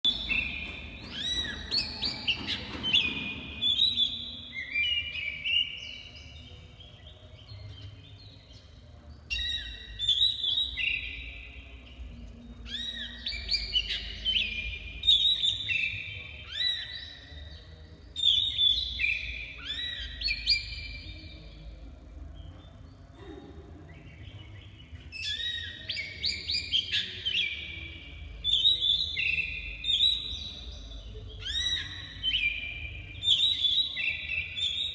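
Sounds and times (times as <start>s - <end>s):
bird whistling song: 0.0s - 6.3s, 12.6s - 17.3s, 24.3s - 34.9s.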